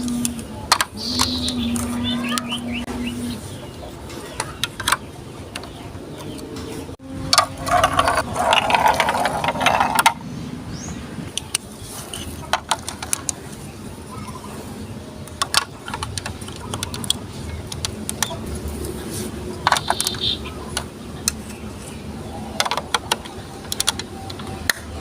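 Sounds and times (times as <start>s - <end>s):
marbles clattering on plastic track: 7.3s - 10.2s.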